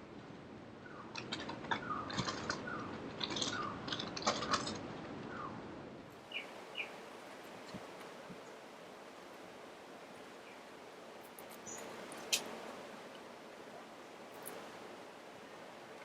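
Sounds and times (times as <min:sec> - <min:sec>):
small birds chirping: 0:06.2 - 0:08.7, 0:10.3 - 0:12.6
light clicks and taps: 0:11.2 - 0:13.2.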